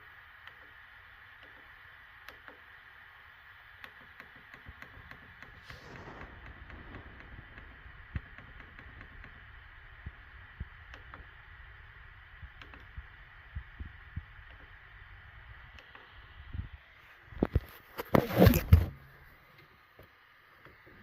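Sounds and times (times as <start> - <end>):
soft low thumps: 5.8 - 15.6.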